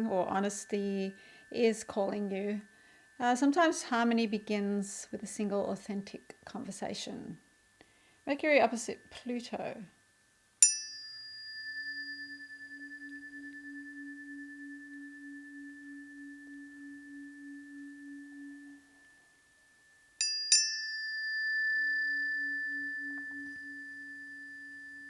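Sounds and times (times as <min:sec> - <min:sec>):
tuning forks ringing: 0:00.0 - 0:04.3, 0:10.6 - 0:25.0.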